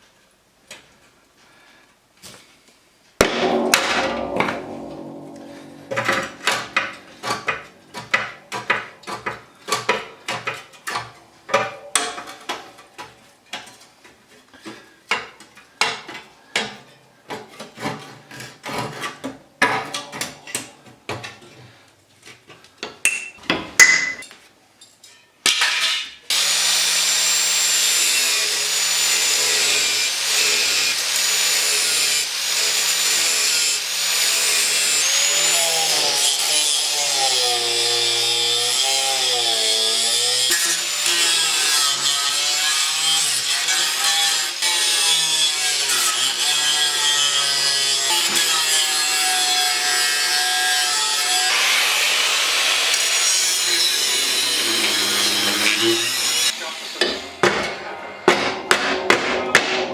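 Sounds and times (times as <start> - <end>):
scraping strokes on metal: 36.3 - 57.4
power tool running on metal: 51.3 - 57.4.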